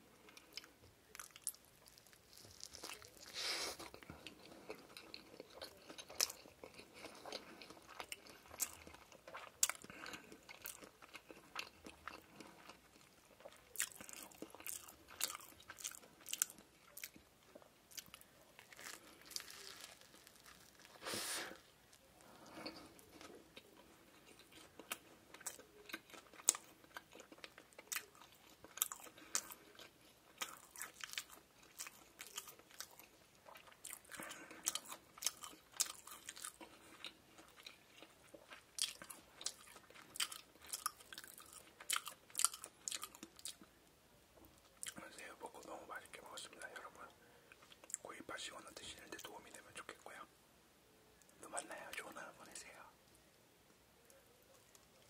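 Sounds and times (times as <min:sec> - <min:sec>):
chewing crunches: 0:00.3 - 0:21.0, 0:21.9 - 0:43.7.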